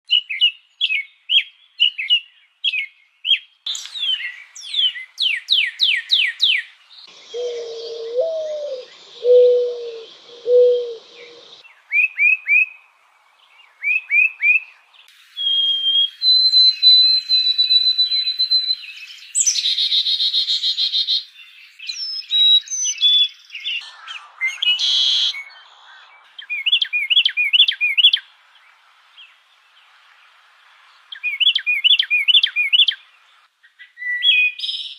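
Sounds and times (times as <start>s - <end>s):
birds chirping: 0.8s - 34.9s
lower repeated bird call: 3.7s - 12.8s.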